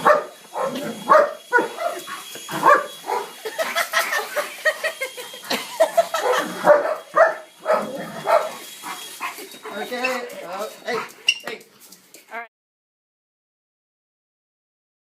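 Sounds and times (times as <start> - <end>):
dog barking rapidly: 0.0 - 2.0, 2.6 - 3.4, 6.1 - 9.4.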